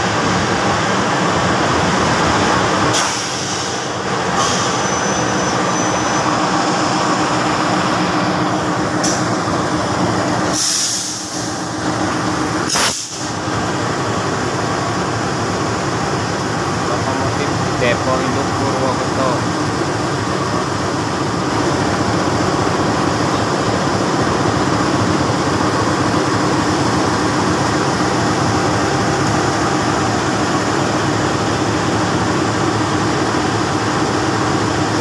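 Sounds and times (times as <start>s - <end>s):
locomotive engine running: 0.0s - 35.0s
wheels rumbling on rail: 0.0s - 35.0s
short hisses: 10.5s - 11.5s.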